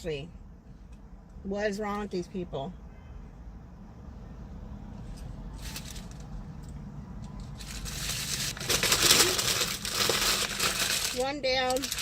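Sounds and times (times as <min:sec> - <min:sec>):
paper packaging crumpling: 0:07.5 - 0:12.0.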